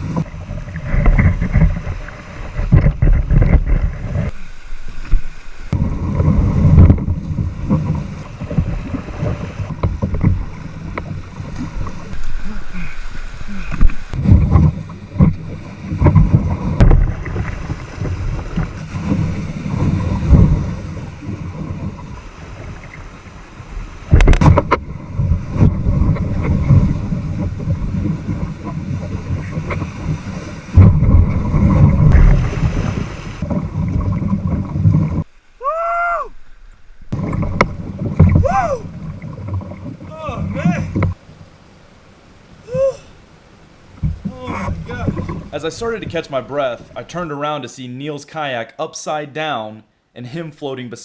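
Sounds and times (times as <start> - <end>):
wind buffeting microphone: 0.0 - 4.4, 5.1 - 35.3, 43.9 - 47.0
rushing churning water: 0.0 - 47.7
heavy thumps: 13.8 - 20.8.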